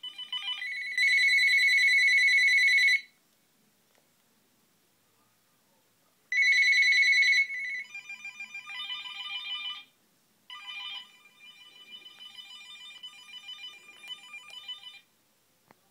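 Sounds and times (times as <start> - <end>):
mobile phone ringtone: 0.0 - 3.1, 6.3 - 9.9, 10.5 - 15.1.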